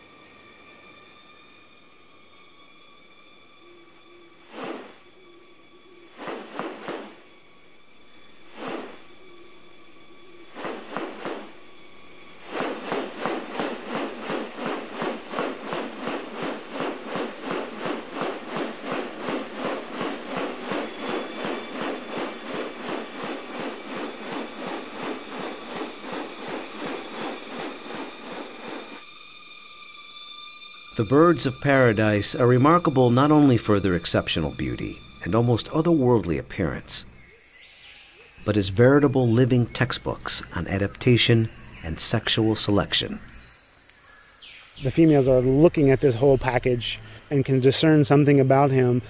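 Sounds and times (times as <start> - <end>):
high drone of insects: 0.0 - 49.0
short rustling: 4.5 - 5.0, 6.2 - 7.3, 8.5 - 9.1, 10.5 - 11.6, 12.2 - 29.0
fast regular pulses: 12.4 - 29.0.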